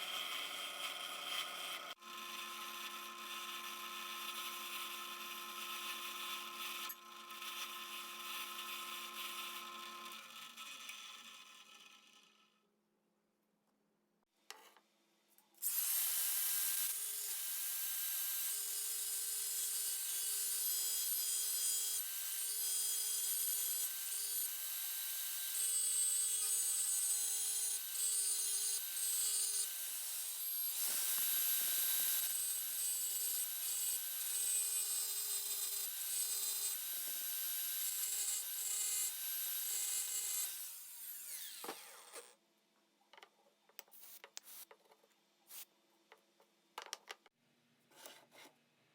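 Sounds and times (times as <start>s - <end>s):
power tool grinding metal: 15.6s - 42.4s.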